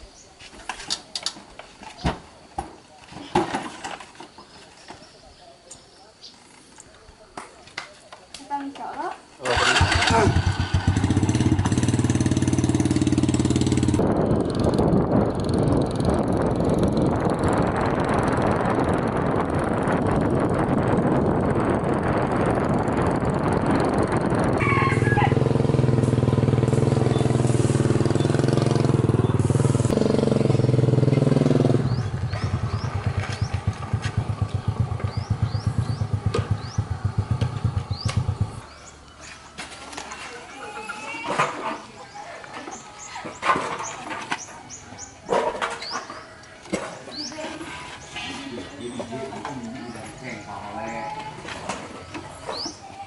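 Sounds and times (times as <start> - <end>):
small petrol engine running: 9.5 - 38.7.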